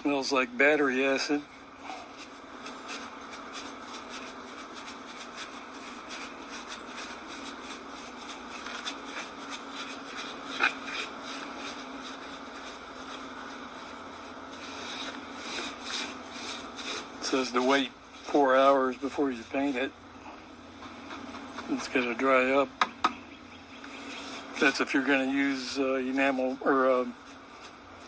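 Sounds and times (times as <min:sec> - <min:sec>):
brush scrubbing metal grill: 0:00.2 - 0:19.9.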